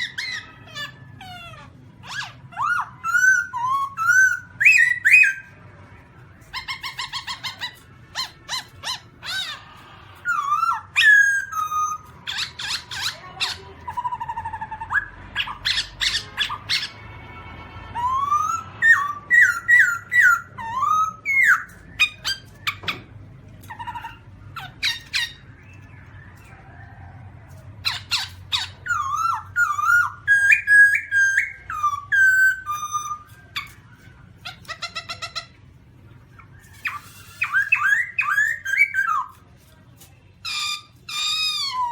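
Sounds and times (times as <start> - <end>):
laughingthrush calling: 6.5 - 17.1, 27.8 - 35.7.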